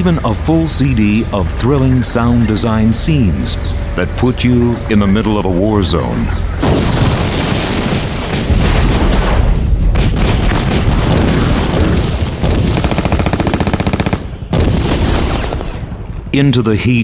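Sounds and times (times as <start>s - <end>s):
deep rumble: 0.0s - 16.7s
machine-gun burst: 6.6s - 15.8s
gunfire: 6.6s - 15.9s
explosions: 6.6s - 16.0s.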